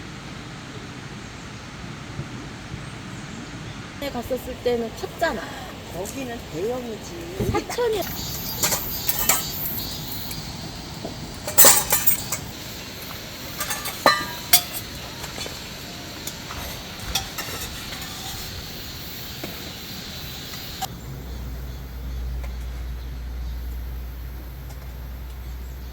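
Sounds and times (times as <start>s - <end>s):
steady background noise: 0.0s - 25.9s
light clinks and knocks: 8.0s - 10.5s, 11.1s - 18.8s.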